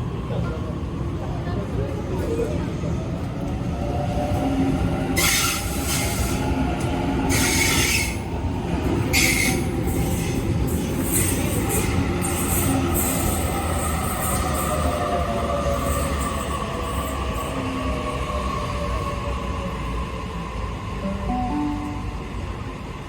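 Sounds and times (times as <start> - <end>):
train rumbling on rails: 0.0 - 23.0.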